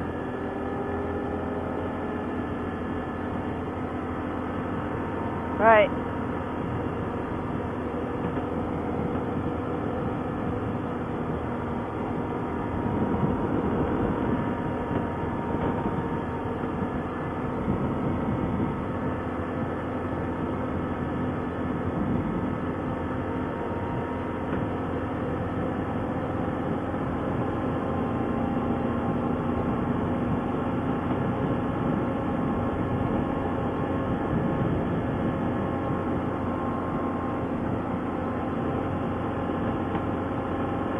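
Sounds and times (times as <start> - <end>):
atv engine running: 0.0 - 40.9
rough low rumble: 0.0 - 40.9.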